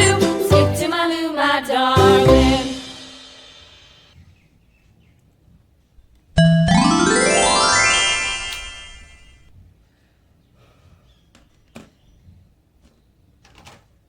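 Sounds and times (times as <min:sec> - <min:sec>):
bright rising synth tone: 0:06.4 - 0:09.4.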